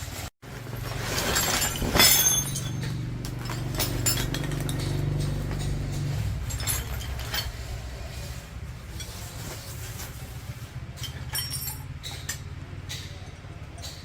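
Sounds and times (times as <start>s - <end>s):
metal tools clinking: 0.0s - 14.0s
short ringing clink: 1.4s - 7.4s.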